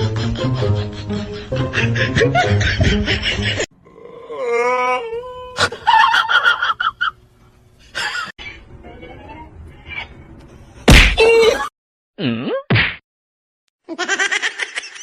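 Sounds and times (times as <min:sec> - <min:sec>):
music: 0:00.0 - 0:03.6.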